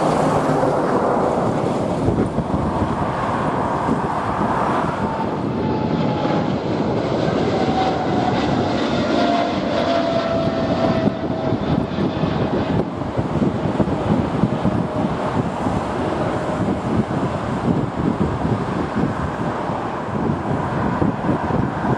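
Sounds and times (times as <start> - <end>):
jet engines whining: 0.0 - 21.9
wind buffeting microphone: 0.0 - 21.9.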